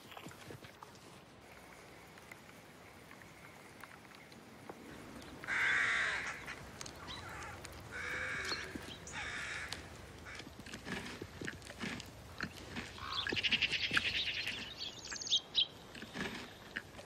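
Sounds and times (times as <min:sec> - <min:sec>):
faint forest background: 0:00.0 - 0:17.0
harsh cawing bird calls: 0:05.4 - 0:10.5, 0:12.9 - 0:15.4.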